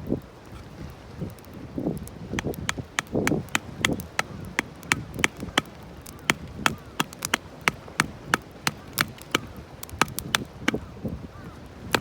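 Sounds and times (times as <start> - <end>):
hatchet striking firewood: 2.3 - 10.9.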